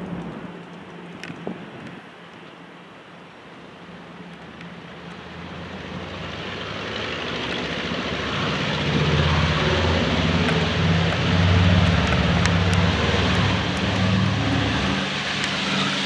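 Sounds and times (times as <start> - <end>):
airplane engines droning: 0.0 - 16.0.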